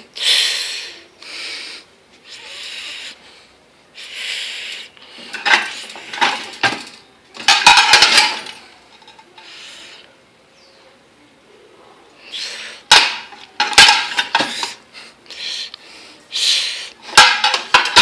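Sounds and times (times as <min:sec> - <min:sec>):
dishes and cutlery clattering: 0:05.3 - 0:09.4, 0:12.9 - 0:14.8, 0:17.1 - 0:18.0.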